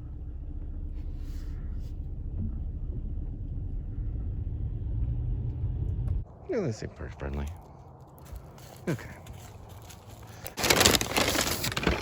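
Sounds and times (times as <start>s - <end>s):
car rolling on bumpy driveway: 0.0s - 6.2s.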